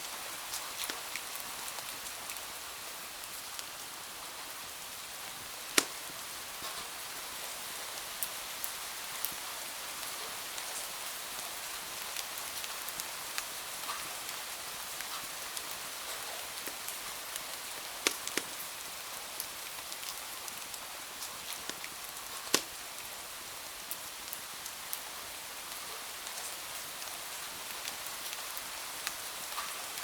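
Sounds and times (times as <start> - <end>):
steady rain hiss: 0.0 - 30.0
sharp ticks and clicks: 18.0 - 18.5.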